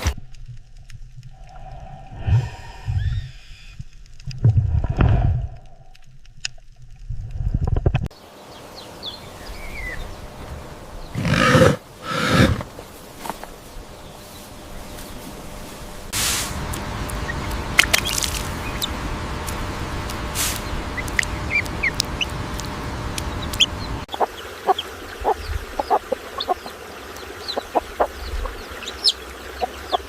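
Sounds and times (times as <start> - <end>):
large animal loud calls: 11.2 - 12.7.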